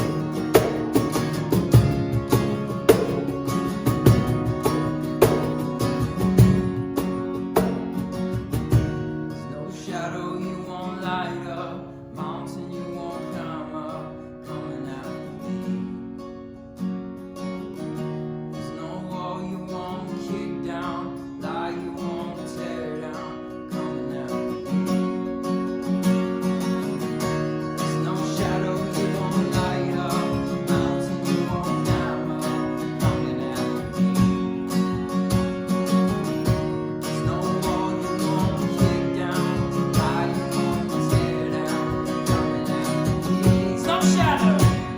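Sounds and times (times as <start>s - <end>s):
strummed acoustic guitar: 0.0s - 44.9s
person singing: 27.9s - 34.4s, 36.1s - 44.9s.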